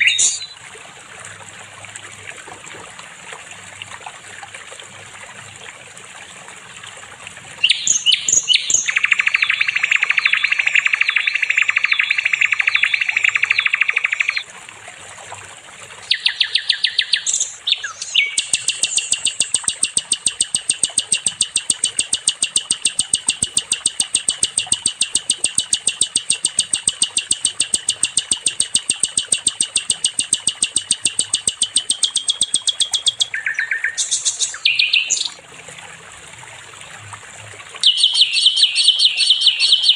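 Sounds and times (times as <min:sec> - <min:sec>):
songbird singing rapid trills: 0:00.0 - 0:00.6, 0:07.6 - 0:14.4, 0:16.0 - 0:35.4, 0:37.8 - 0:39.9.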